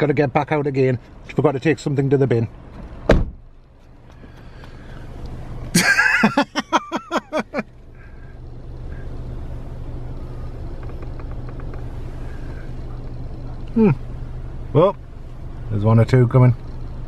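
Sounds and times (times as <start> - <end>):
car engine humming: 0.0 - 17.0
car door thudding shut: 2.8 - 3.4.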